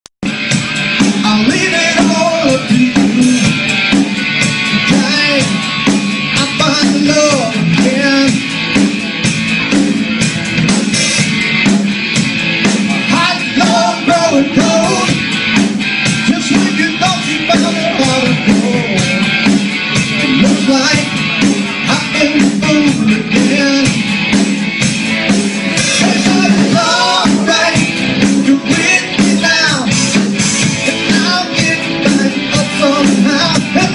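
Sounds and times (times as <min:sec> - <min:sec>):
drum kit playing: 0:00.2 - 0:33.9
rock guitar: 0:00.2 - 0:33.9
person singing: 0:01.1 - 0:03.8, 0:04.7 - 0:08.5, 0:12.9 - 0:15.2, 0:16.3 - 0:19.4, 0:20.0 - 0:24.0, 0:25.6 - 0:33.9.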